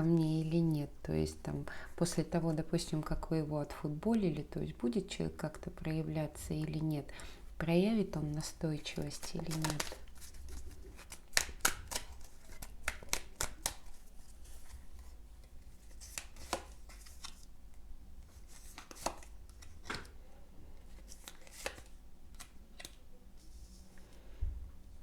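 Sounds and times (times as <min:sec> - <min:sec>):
low steady hum: 0:00.0 - 0:25.0
cards snapping and swishing: 0:09.3 - 0:10.3, 0:10.9 - 0:13.9, 0:21.1 - 0:23.0.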